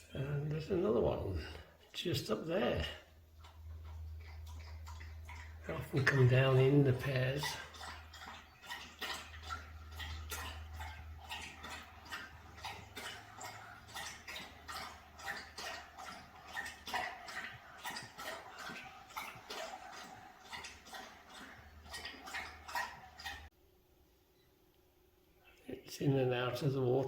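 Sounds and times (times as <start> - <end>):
birds chirping: 3.6 - 12.6.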